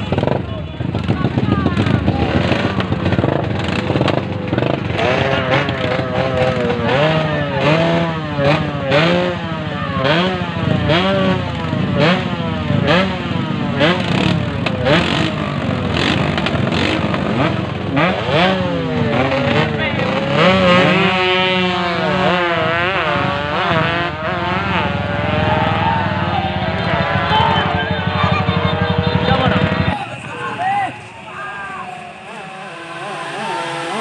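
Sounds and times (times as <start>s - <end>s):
crowd noise: 0.0s - 34.0s
motorcycle engine revving: 0.0s - 34.0s.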